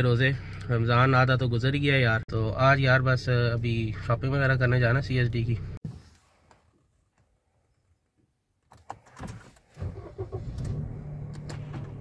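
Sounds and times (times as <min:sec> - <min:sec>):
car engine starting and idling: 0:08.9 - 0:12.0.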